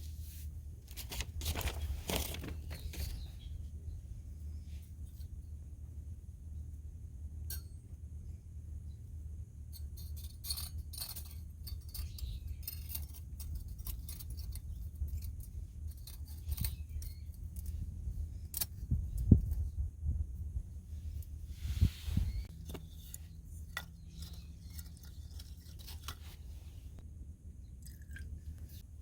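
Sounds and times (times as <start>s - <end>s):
metal panels clinking: 9.7s - 19.6s.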